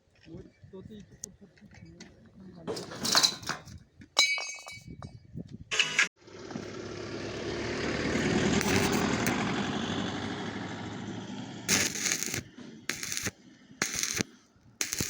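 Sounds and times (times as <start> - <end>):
vehicle passing by: 6.2 - 14.8
short bursts of noise: 11.7 - 15.0.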